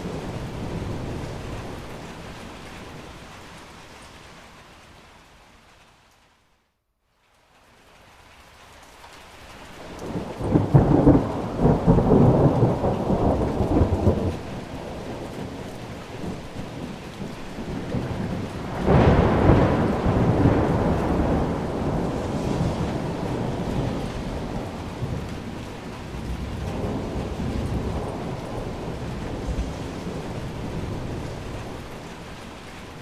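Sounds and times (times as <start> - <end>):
thunder rumbling: 0.0 - 3.2, 9.8 - 33.0
steady rain: 0.0 - 33.0.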